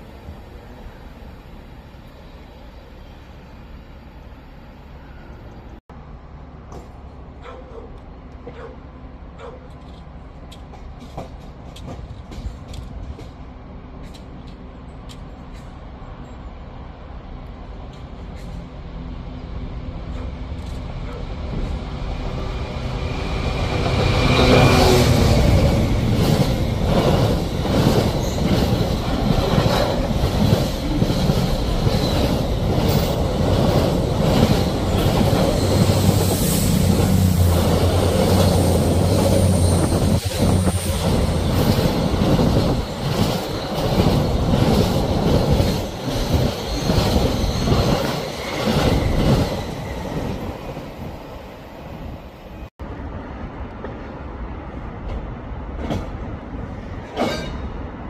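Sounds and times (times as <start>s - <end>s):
diesel locomotive passing: 0.0s - 58.0s
low train engine tone: 0.0s - 58.0s
train wagons clattering over rail joints: 9.4s - 15.8s, 25.2s - 50.5s, 57.0s - 57.8s.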